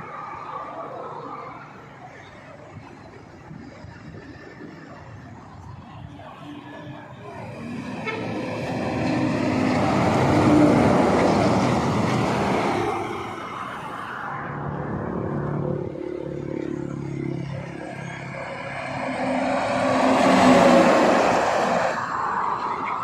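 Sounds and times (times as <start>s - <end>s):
traffic engine hum: 0.0s - 23.0s
vehicle passing by: 7.4s - 22.4s.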